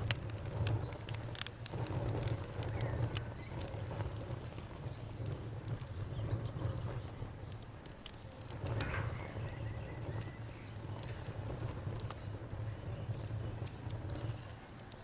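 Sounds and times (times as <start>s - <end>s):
campfire crackling and popping: 0.0s - 15.0s
crickets chirping: 0.0s - 15.0s.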